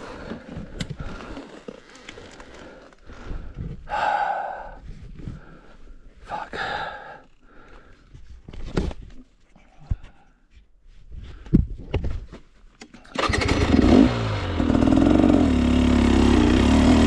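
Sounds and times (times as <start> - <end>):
person breathing hard: 0.0 - 8.3.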